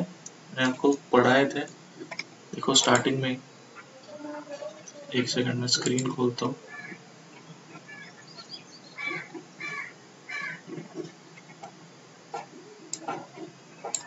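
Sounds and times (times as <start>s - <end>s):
harsh bird calls: 6.4s - 10.7s
high bird chirps: 6.7s - 10.5s.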